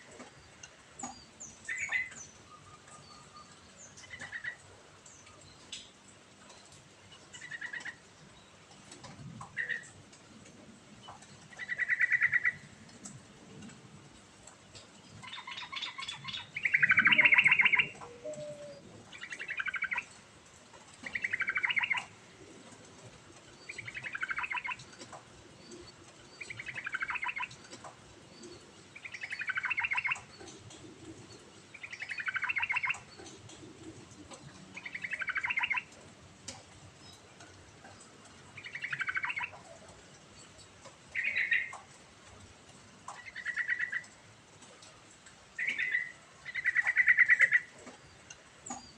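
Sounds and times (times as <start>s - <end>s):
bird singing bubbly phrases: 15.2s - 20.1s, 21.0s - 22.1s, 23.6s - 24.8s, 26.4s - 27.5s, 29.0s - 30.4s, 31.7s - 33.2s, 34.8s - 35.9s, 38.6s - 39.6s, 41.1s - 41.7s, 43.2s - 44.1s, 45.6s - 47.7s.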